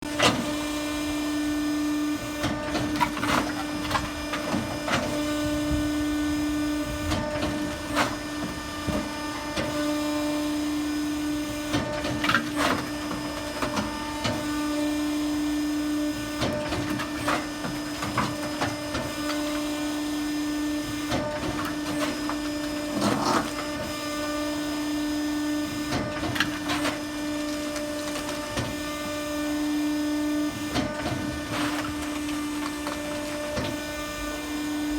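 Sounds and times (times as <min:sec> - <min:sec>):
firewood processor mechanical hum: 0:00.0 - 0:34.9.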